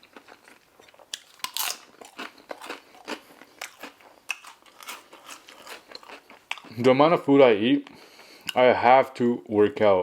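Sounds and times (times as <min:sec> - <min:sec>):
person chewing crunchy food: 0:00.0 - 0:06.9.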